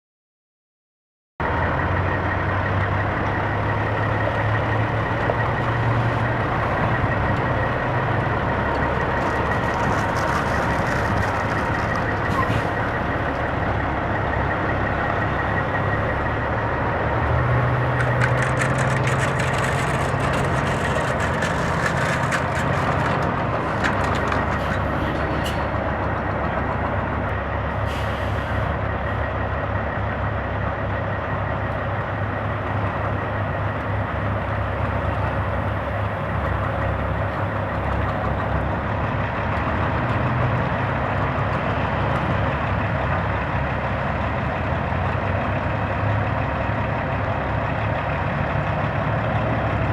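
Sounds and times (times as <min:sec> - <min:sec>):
diesel truck engines running: 0:01.4 - 0:49.9
constant rushing noise: 0:04.0 - 0:27.4.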